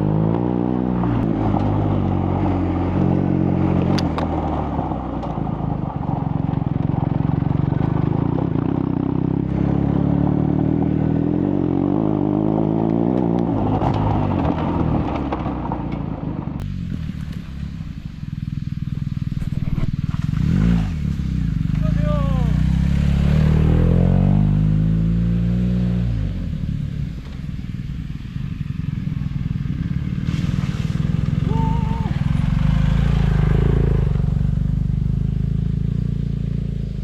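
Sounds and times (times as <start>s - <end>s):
motorcycle engine running: 0.0s - 37.0s
road and gravel noise: 0.0s - 37.0s
clatter: 3.8s - 9.0s, 12.4s - 21.8s.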